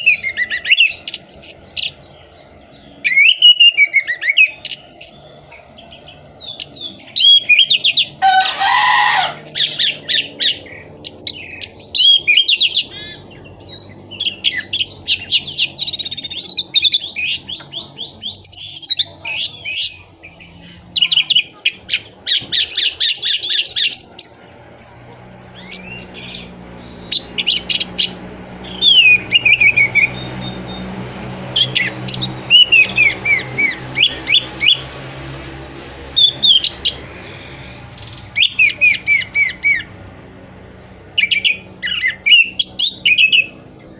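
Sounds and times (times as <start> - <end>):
harsh rasping bird call: 6.4 - 13.4, 14.1 - 40.1.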